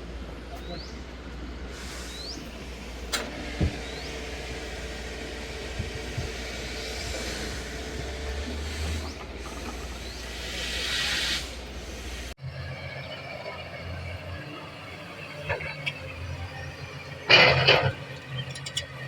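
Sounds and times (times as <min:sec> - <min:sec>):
hiss: 0:01.7 - 0:02.8, 0:06.3 - 0:12.4.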